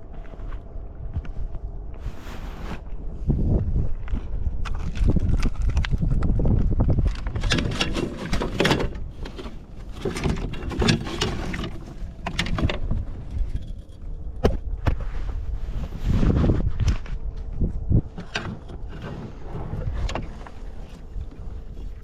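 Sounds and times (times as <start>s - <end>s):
wind on microphone: 0.0s - 22.0s
gear clicking and rattling: 4.6s - 14.3s.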